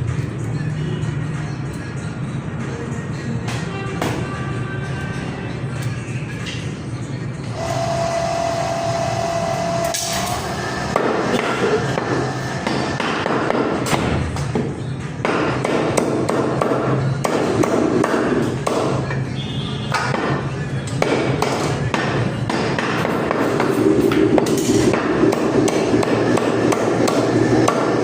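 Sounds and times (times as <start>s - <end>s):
music: 0.0s - 8.3s, 11.0s - 28.0s
cleaver chopping meat: 10.9s - 14.2s, 15.2s - 19.0s, 21.0s - 23.7s, 24.4s - 28.0s.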